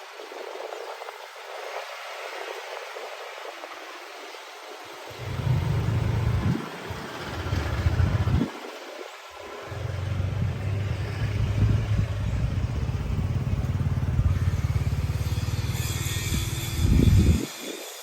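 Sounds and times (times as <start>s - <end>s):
vehicle engine low rumble: 5.1s - 8.6s, 9.5s - 17.4s.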